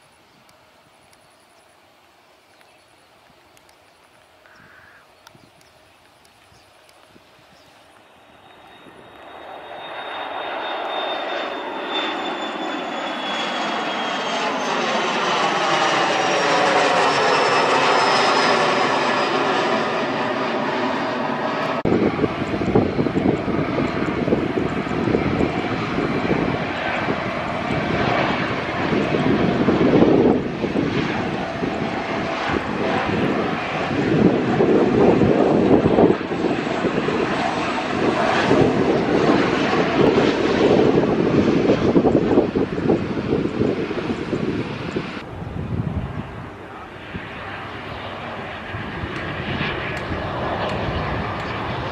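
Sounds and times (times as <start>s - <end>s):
airliner engines with high whine: 0.0s - 51.9s
wind buffeting microphone: 4.4s - 7.8s, 21.7s - 51.9s.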